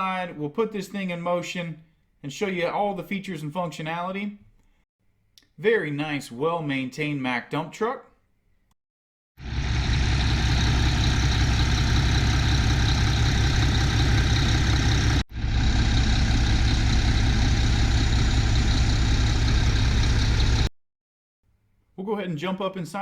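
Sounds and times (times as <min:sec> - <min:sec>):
diesel engine idling: 0:09.4 - 0:20.7.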